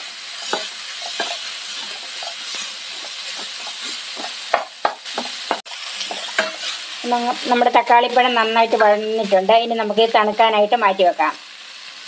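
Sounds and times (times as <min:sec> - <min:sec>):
vegetables sizzling in oil: 0:00.0 - 0:12.0
wooden spatula scraping wok: 0:00.4 - 0:06.9.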